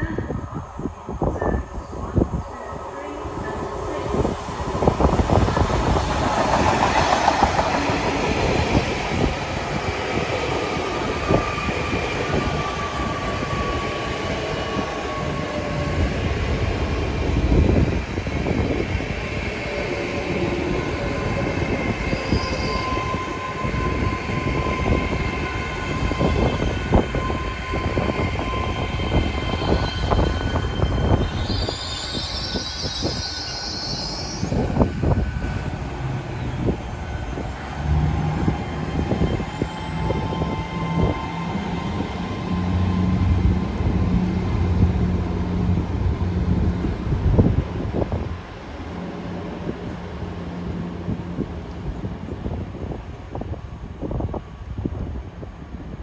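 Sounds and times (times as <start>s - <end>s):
train wheels rumbling and clicking: 3.7s - 13.8s.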